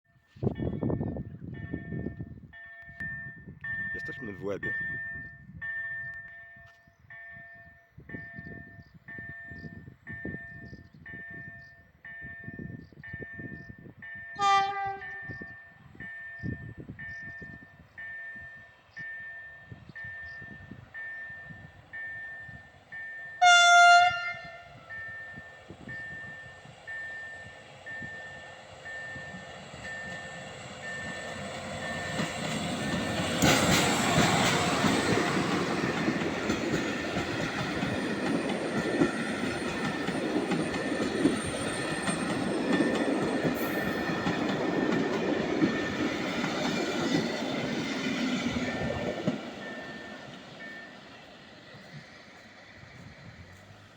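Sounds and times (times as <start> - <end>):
train passing with wheel clatter: 0.3 - 53.9
train horn: 14.4 - 15.6, 23.4 - 24.9.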